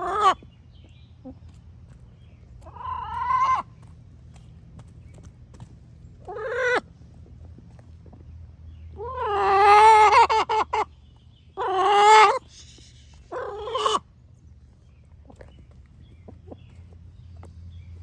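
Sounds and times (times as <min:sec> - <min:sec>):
hens calling: 0:00.0 - 0:00.5, 0:02.6 - 0:03.9, 0:06.2 - 0:06.9, 0:09.0 - 0:14.2.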